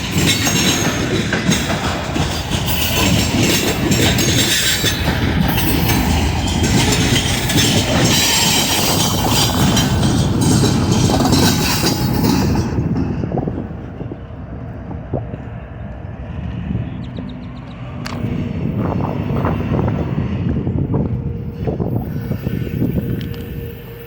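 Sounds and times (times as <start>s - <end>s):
train wheels clacking over rail joints: 0.0s - 14.2s.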